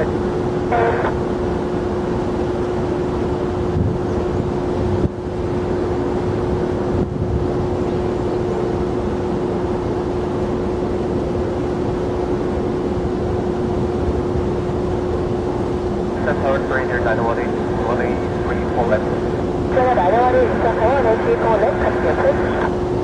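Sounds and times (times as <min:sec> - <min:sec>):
jet engine rush and whine: 0:00.0 - 0:23.0.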